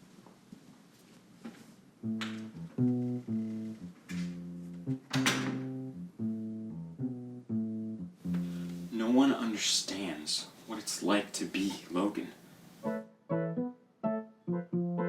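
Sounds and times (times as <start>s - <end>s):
guitar strumming chords: 2.0s - 9.0s.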